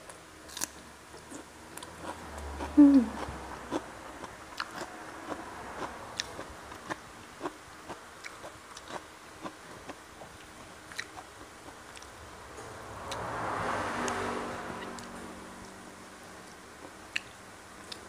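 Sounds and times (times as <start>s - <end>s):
chewing fried fish: 0.5s - 12.1s.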